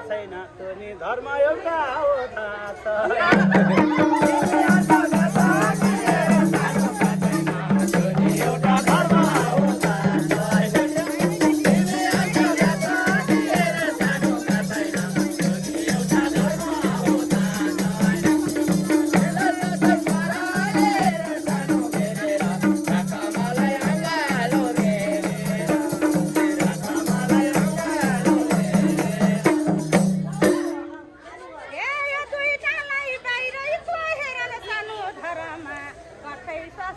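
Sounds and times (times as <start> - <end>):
hand drum rhythm: 3.3 - 31.1
shaker rattle: 4.1 - 30.8.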